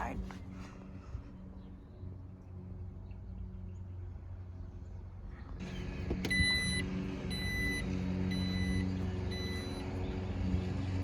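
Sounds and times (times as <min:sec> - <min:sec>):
engine hum: 0:00.0 - 0:11.0
vehicle warning chime beeping: 0:06.2 - 0:10.0.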